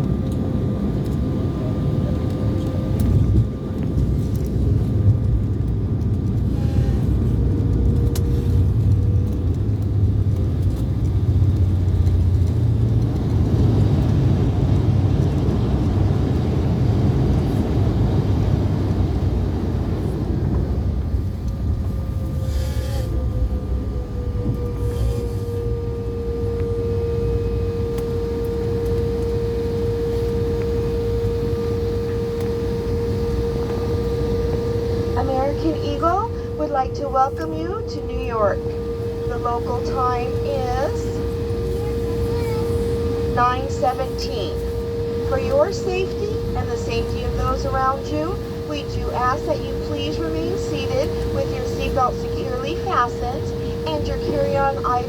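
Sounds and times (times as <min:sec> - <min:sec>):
jet engine whine: 0:00.0 - 0:55.0
jet engines rumbling: 0:00.0 - 0:55.0.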